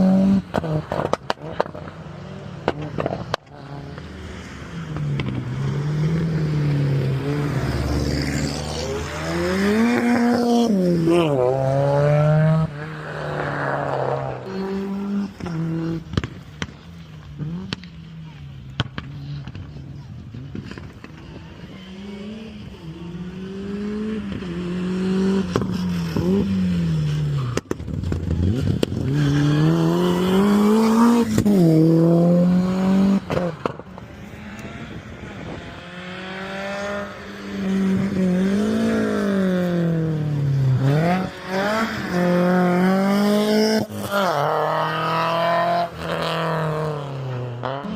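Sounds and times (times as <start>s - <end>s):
rally car engines accelerating: 0.0s - 47.9s.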